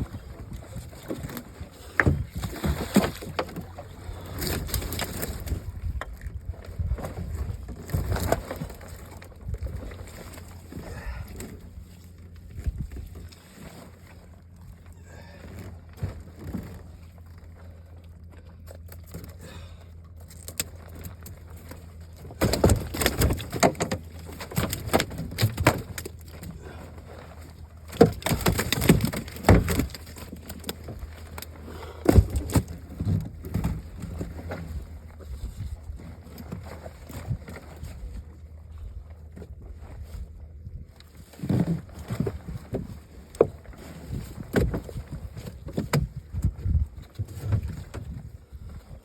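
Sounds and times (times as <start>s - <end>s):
knocking and clattering in boat: 0.0s - 19.4s, 20.2s - 38.4s, 39.1s - 49.0s.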